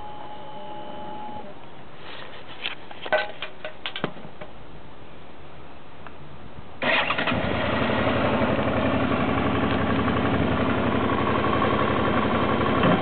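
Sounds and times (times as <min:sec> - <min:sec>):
motorcycle engine starting and idling: 0:06.8 - 0:13.0.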